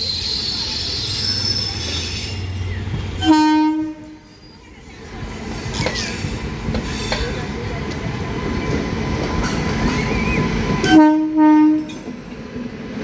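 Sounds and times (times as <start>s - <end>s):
train rumbling: 0.0s - 13.0s
train horn blast: 3.2s - 4.3s, 10.8s - 12.0s.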